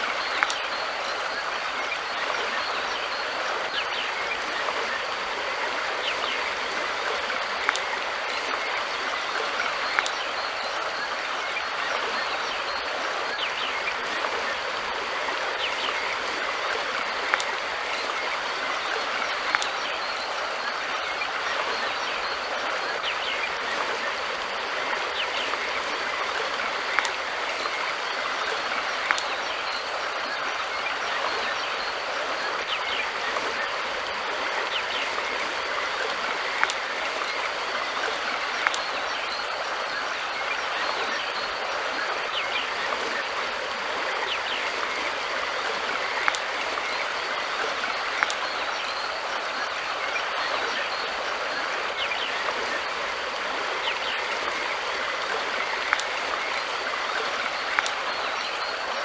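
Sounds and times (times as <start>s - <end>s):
river water rushing: 0.0s - 59.0s
water splash clicks: 0.4s - 0.6s, 9.8s - 10.2s, 19.5s - 19.8s, 29.0s - 29.4s, 36.6s - 36.8s, 38.0s - 39.0s, 48.2s - 48.4s, 57.7s - 58.0s.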